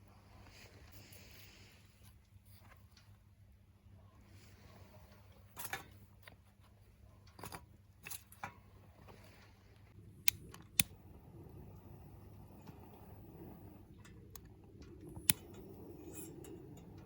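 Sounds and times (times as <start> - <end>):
wood fire crackling and popping: 9.9 - 17.0.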